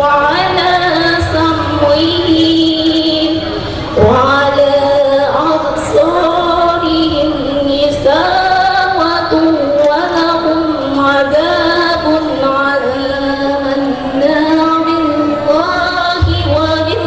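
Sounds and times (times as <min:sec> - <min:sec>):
woman reciting melodically: 0:00.0 - 0:17.0.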